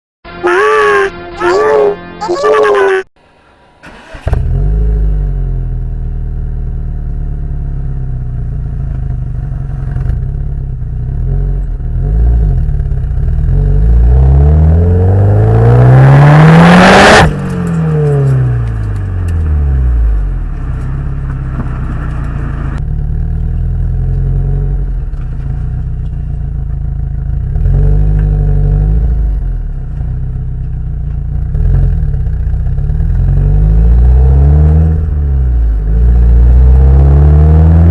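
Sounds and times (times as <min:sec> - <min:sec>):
car exhaust revving: 0:10.7 - 0:25.1.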